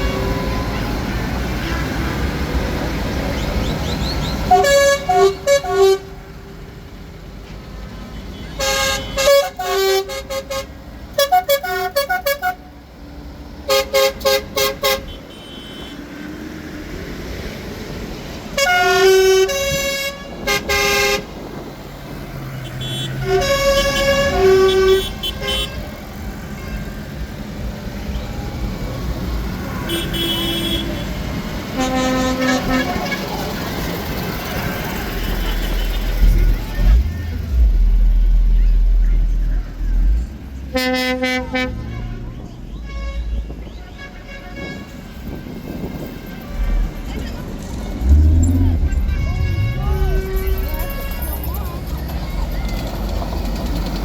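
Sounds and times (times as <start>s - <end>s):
vehicle horns tooting: 0.0s - 2.3s, 3.7s - 6.3s, 8.2s - 12.7s, 13.7s - 16.1s, 18.6s - 21.6s, 22.5s - 27.1s, 29.7s - 37.6s, 40.7s - 51.9s
passing engines running: 0.0s - 11.6s, 12.2s - 54.0s.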